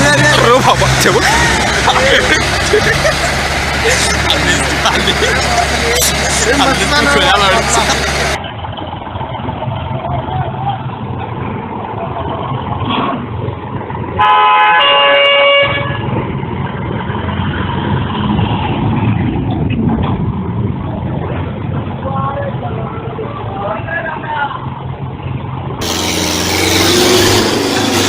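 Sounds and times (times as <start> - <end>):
engine and road rumble: 0.0 - 28.0
vehicle horn honking: 14.2 - 16.2.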